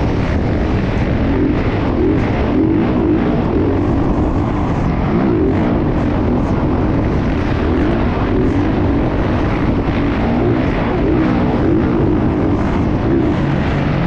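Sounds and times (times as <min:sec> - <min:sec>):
motocross engine revving: 0:00.0 - 0:14.0.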